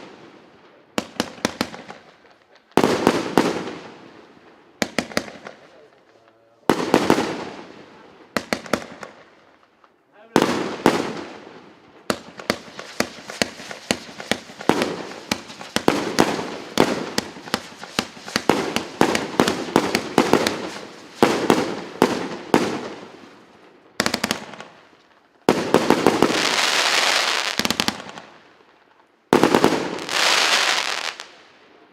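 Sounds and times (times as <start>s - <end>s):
firework bangs: 0.7s - 4.2s, 4.8s - 9.3s, 10.3s - 23.3s, 24.0s - 28.4s, 29.3s - 31.4s
firework crackling bursts: 1.0s - 4.0s, 4.8s - 6.1s, 10.3s - 23.3s, 24.0s - 28.4s, 29.3s - 31.4s.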